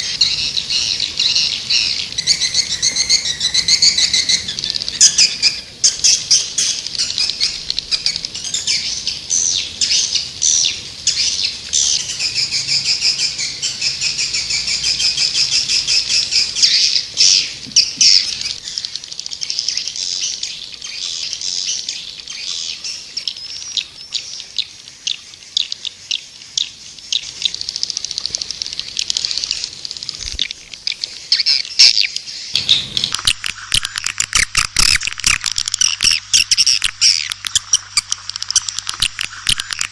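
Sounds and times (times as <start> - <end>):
swiftlets twittering: 32.6 - 39.9.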